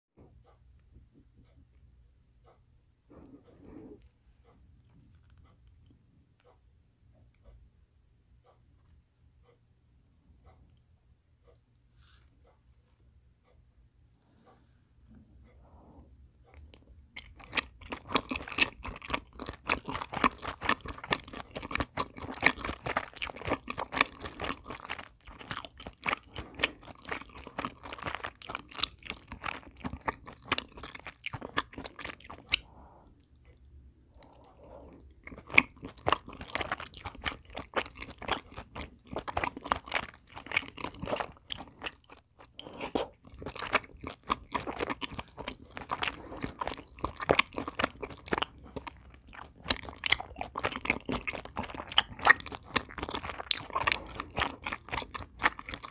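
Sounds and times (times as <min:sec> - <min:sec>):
wet sticky chewing: 0:16.5 - 0:55.9.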